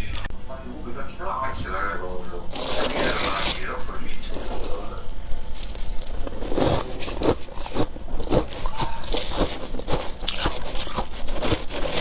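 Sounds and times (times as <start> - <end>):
ice being crunched and chewed: 2.5 - 12.0.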